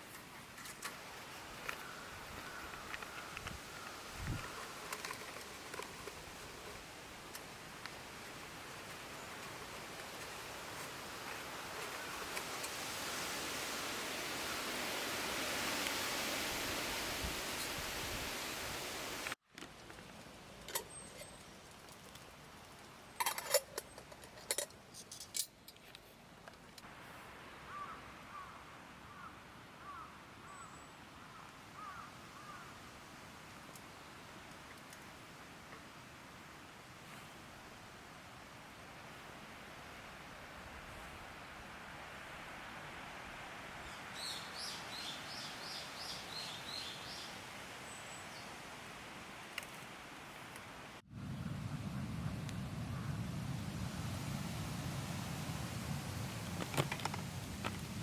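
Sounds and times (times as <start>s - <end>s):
faint steady hiss: 0.0s - 58.0s
light metallic clinks and knocks: 23.2s - 26.8s.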